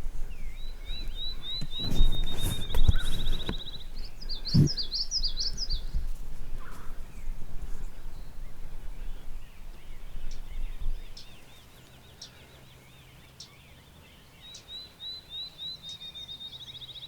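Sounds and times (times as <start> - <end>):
songbirds singing: 0.0 - 17.0.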